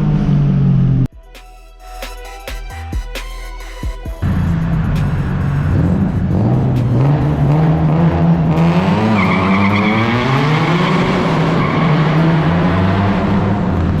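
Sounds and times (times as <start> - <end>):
car engine running under load: 4.2 - 14.0.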